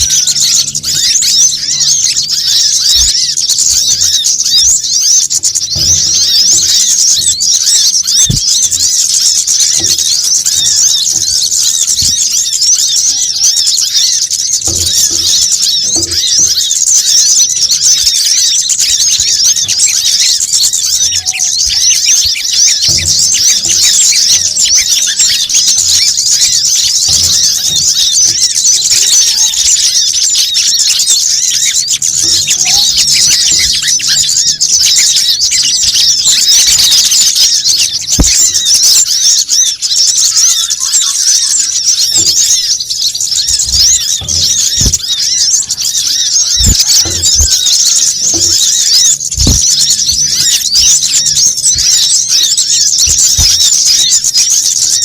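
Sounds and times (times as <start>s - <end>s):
small birds chirping and twittering: 0.0s - 55.0s
faint low thumps: 43.4s - 45.9s.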